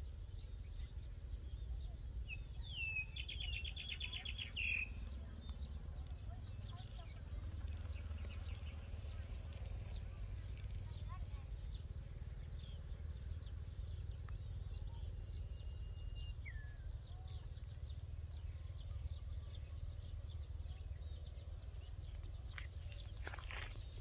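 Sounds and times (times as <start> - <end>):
bird chirps: 0.4 - 11.9.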